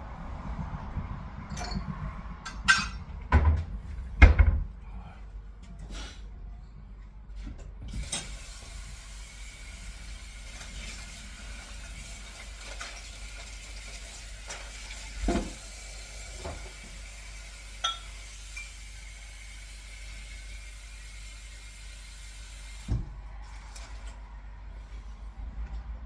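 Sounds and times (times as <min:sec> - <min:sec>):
food sizzling in a pan: 0:08.0 - 0:22.9.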